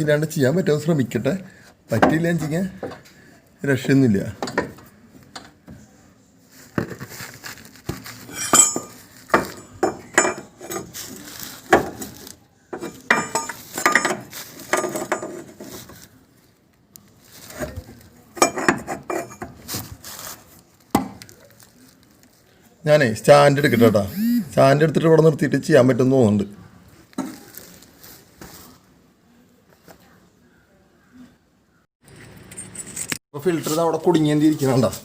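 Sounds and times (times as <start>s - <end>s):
metal tools clinking: 8.1s - 15.9s, 32.0s - 33.2s.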